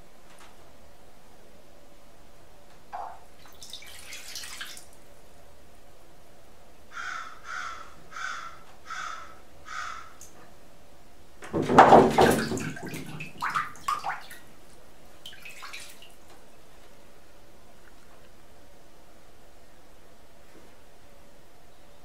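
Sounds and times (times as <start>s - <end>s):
splashing in water: 3.5s - 5.0s, 11.5s - 14.5s, 15.2s - 16.2s
loon harsh calls: 6.9s - 10.2s.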